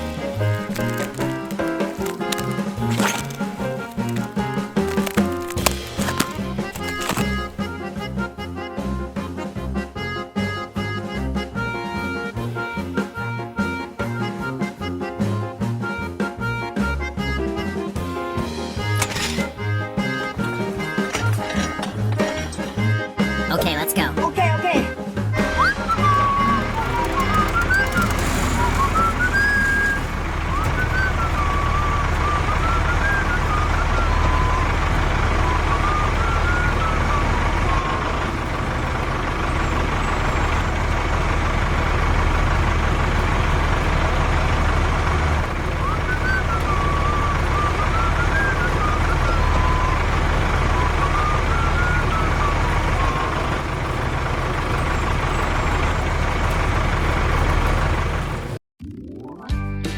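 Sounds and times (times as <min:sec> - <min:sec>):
vehicle engine humming: 0:00.0 - 0:07.6, 0:26.0 - 0:58.6
faint whistled tune: 0:25.7 - 0:38.0, 0:45.8 - 0:53.5.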